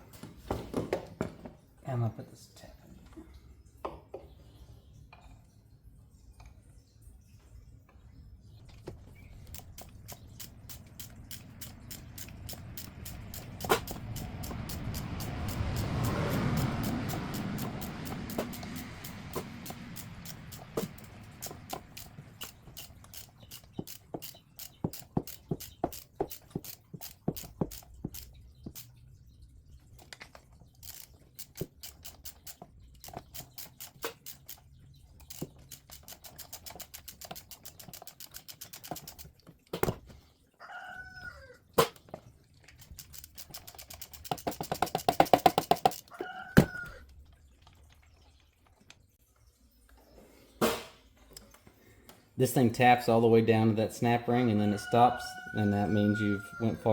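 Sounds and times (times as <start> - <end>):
squeaky chirping sounds: 9.0 - 29.0
ratchet wrench clicking: 9.4 - 28.9, 30.8 - 40.0, 42.8 - 46.1.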